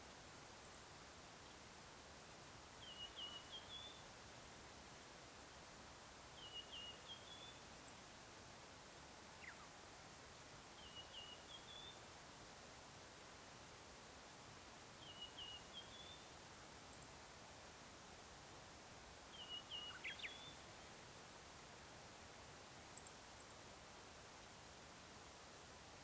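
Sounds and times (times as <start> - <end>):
outdoor hiss: 0.0 - 26.0
songbird singing: 2.8 - 4.1, 6.3 - 8.1, 9.3 - 9.8, 10.7 - 12.1, 15.0 - 17.2, 19.3 - 21.1, 22.8 - 23.6.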